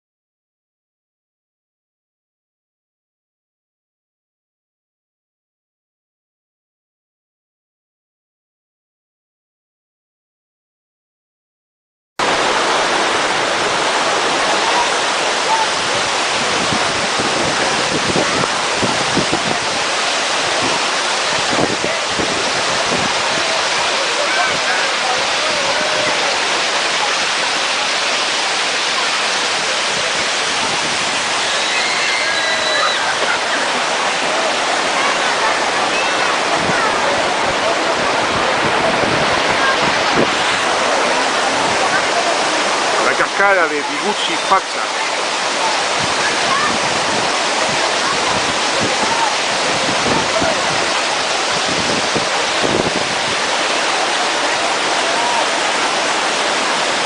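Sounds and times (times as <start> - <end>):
waterfall rushing: 12.2 - 57.0.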